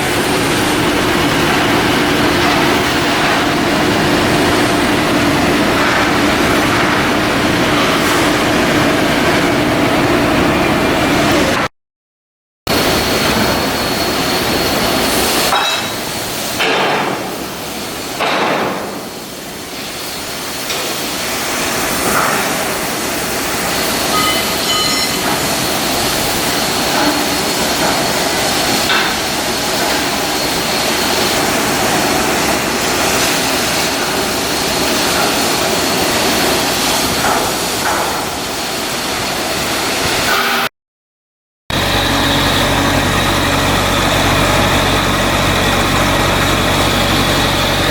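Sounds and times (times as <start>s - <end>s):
hammer blows on steel: 24.1s - 25.5s.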